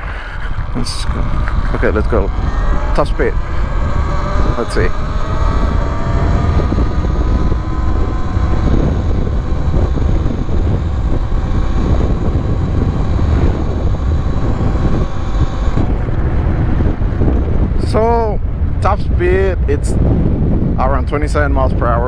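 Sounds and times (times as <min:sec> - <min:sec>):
electric motor whining: 0:00.0 - 0:16.2
wind buffeting microphone: 0:00.0 - 0:22.0.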